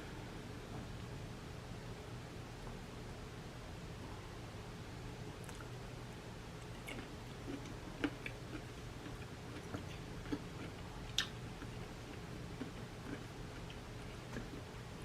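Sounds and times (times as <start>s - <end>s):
faint low hum: 0.0s - 15.0s
chewing and handling food: 5.3s - 5.8s, 6.5s - 15.0s.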